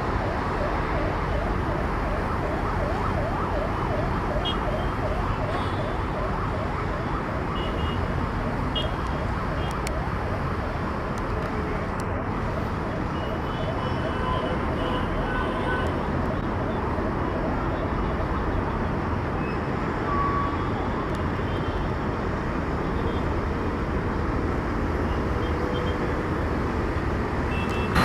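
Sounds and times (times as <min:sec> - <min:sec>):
emergency vehicle siren yelping: 0:00.0 - 0:11.1
road traffic noise: 0:00.0 - 0:28.0.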